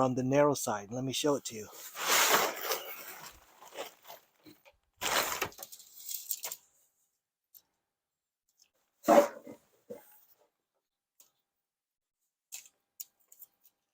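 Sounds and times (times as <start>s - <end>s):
nylon tent rustling: 1.7s - 4.4s, 5.0s - 5.6s.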